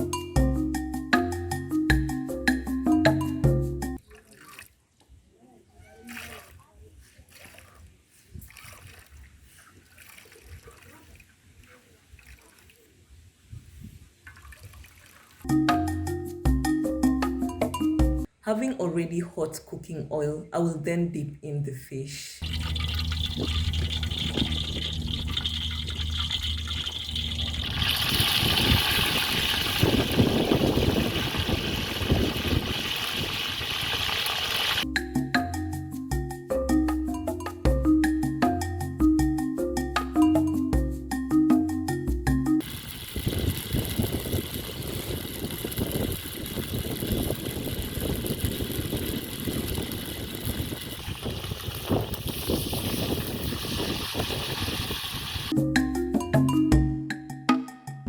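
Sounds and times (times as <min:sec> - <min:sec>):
fish sizzling in hot oil: 0:22.4 - 0:34.8, 0:42.6 - 0:55.6.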